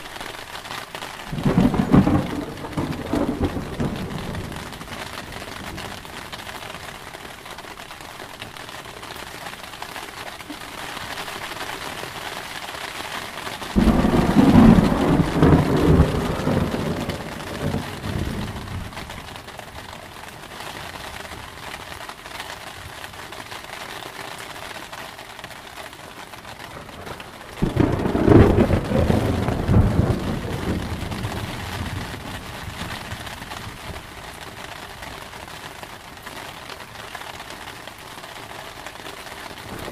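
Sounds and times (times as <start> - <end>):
steady rain: 0.0 - 39.9
thunder rumbling: 1.3 - 6.2, 13.7 - 19.3, 26.8 - 34.1.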